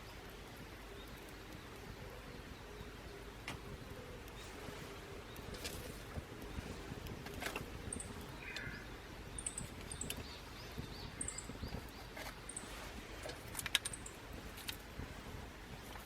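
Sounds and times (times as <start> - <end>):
low outdoor noise: 0.0 - 16.0
small bird chirping: 4.3 - 14.7
sharp clicks: 13.2 - 14.8.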